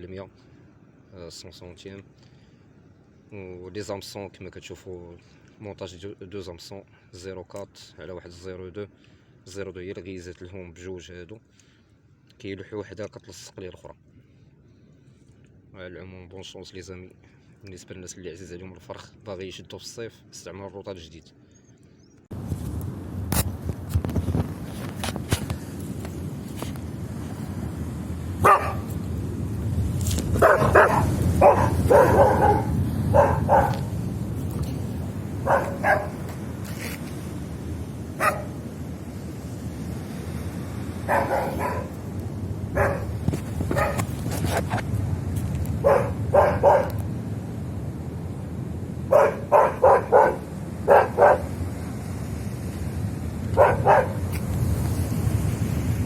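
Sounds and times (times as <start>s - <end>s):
steady low rumble: 22.3s - 56.0s
dog barking: 28.4s - 29.0s, 30.4s - 33.9s, 35.4s - 36.3s, 38.2s - 38.6s, 41.1s - 42.0s, 42.7s - 44.1s, 45.8s - 47.0s, 49.1s - 51.6s, 53.5s - 54.3s.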